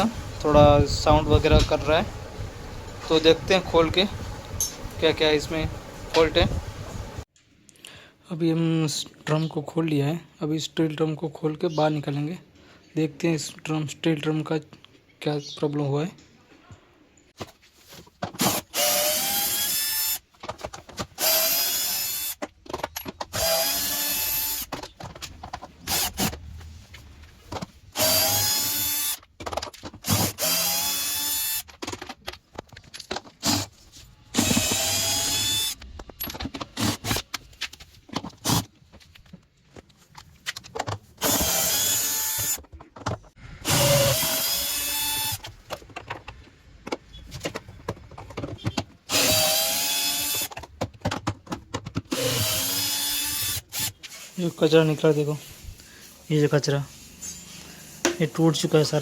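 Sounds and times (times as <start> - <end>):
power drill running: 18.4 - 20.2, 21.2 - 22.4, 23.3 - 24.7, 25.9 - 26.3, 28.0 - 29.2, 30.0 - 31.7, 34.3 - 35.8, 41.2 - 42.6, 43.6 - 45.4, 49.1 - 50.5, 52.1 - 54.0
clicks and knocks of parts: 20.3 - 21.2, 22.3 - 23.4, 29.2 - 30.4, 31.6 - 33.7, 35.7 - 41.5, 45.3 - 49.3, 50.2 - 52.4.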